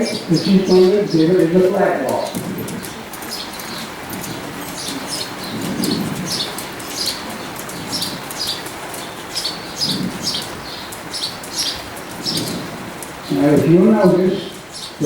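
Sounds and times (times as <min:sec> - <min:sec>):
low outdoor background: 0:00.0 - 0:15.0
small bird chirping: 0:02.2 - 0:13.4.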